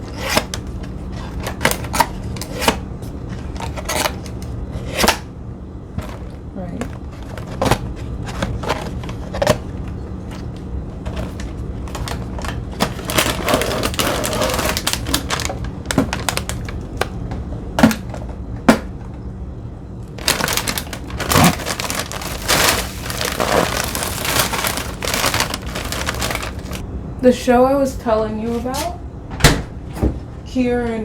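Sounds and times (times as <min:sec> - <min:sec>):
cookies clattering into container: 0:11.1 - 0:16.8, 0:20.2 - 0:26.8.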